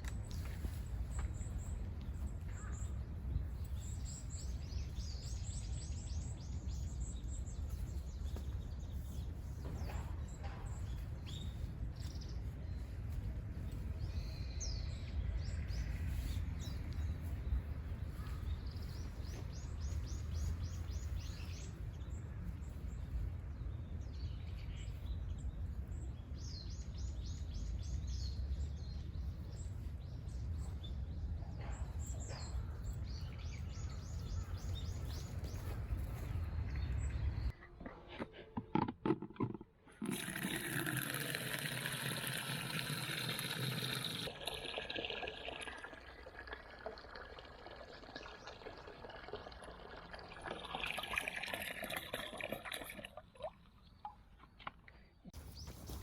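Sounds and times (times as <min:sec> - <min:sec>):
songbirds singing: 0:00.0 - 0:37.9.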